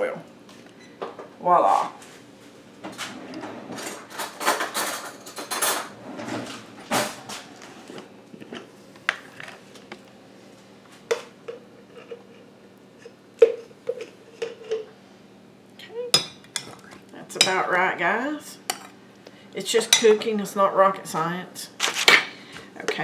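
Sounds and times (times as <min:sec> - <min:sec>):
utensil scraping and clinking: 0:03.8 - 0:06.0, 0:18.7 - 0:19.0.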